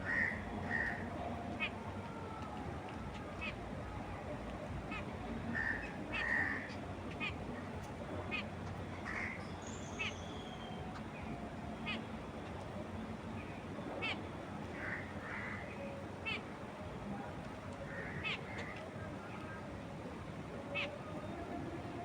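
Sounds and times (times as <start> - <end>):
birds calling: 0.0 - 1.9, 4.8 - 16.6, 17.8 - 19.6.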